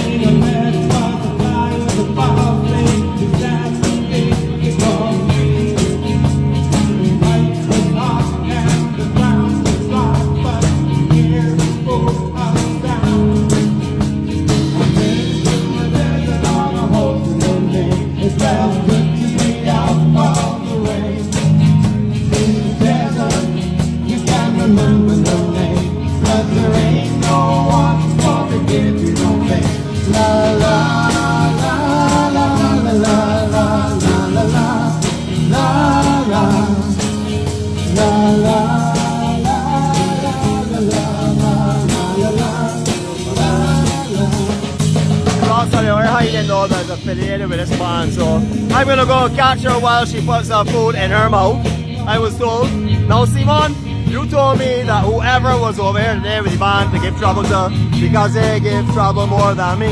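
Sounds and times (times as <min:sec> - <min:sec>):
lead singer singing: 0:00.0 - 0:59.9
rock band playing: 0:00.0 - 0:59.9
steady drum beat: 0:00.0 - 0:59.9.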